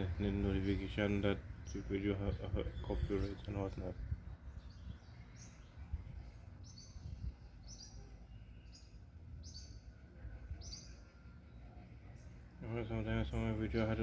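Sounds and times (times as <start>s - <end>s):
low wind rumble: 0.0s - 7.8s
bird chirping: 0.0s - 14.0s.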